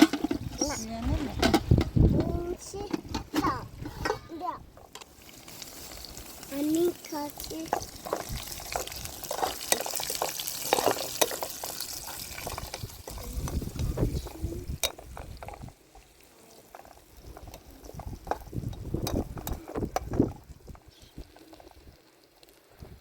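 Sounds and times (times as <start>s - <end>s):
liquid pouring and sloshing: 4.7s - 22.9s.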